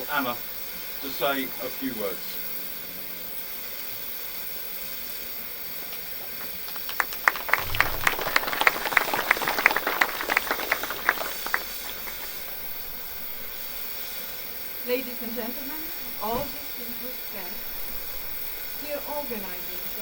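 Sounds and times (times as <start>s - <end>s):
audience applause: 5.9s - 12.7s.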